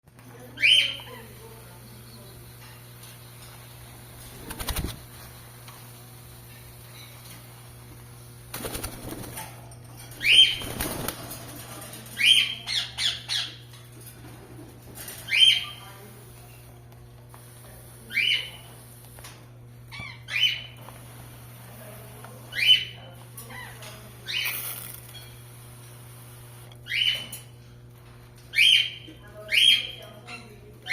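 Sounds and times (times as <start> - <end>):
parakeets calling: 0.6 - 1.6, 10.1 - 11.1, 12.2 - 13.6, 15.3 - 16.1, 18.0 - 18.7, 19.9 - 20.8, 22.5 - 24.5, 26.8 - 27.4, 28.5 - 30.9
wings flapping: 4.0 - 5.3, 8.5 - 12.1.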